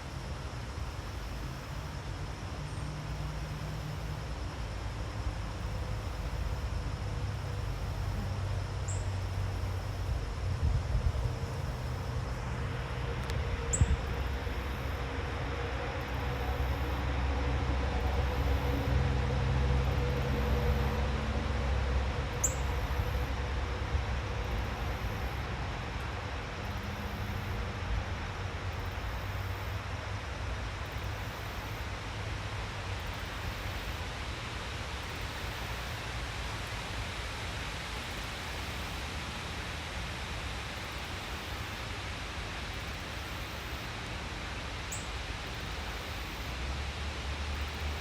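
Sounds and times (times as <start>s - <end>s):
distant vehicle rumble: 2.6s - 28.8s.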